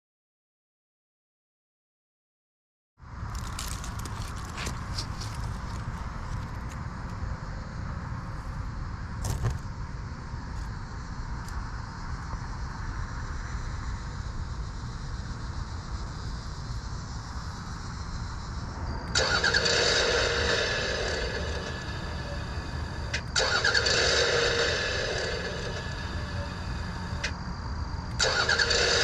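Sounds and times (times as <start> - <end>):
low background rumble: 3.0 - 29.0
model motor whining: 19.2 - 27.3, 28.2 - 29.0.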